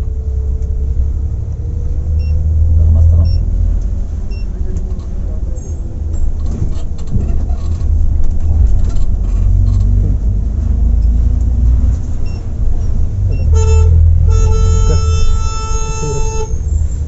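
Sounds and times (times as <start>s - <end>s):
coach engine and road rumble: 0.0s - 17.0s
horn sounding: 13.3s - 16.9s.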